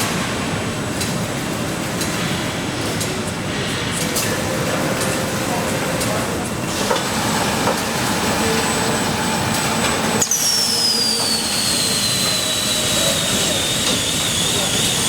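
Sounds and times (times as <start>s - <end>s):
factory machinery running: 0.0s - 15.0s
thin high machine whine: 7.2s - 15.0s.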